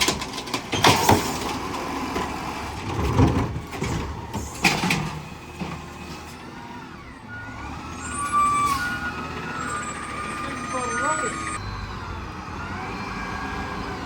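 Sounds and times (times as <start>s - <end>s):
garbage truck running: 0.0s - 14.0s
steady tones: 7.9s - 11.6s.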